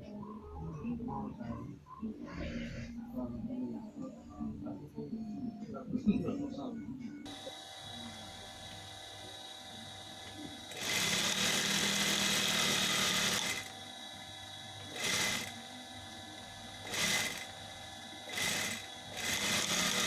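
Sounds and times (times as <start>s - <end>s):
sewing machine running: 7.3s - 16.2s, 16.8s - 20.0s.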